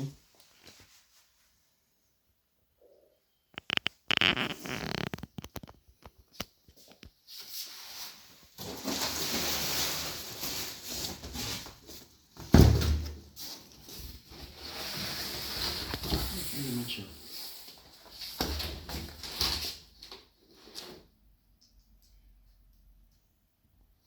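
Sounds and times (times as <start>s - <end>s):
rustling: 3.6s - 12.3s.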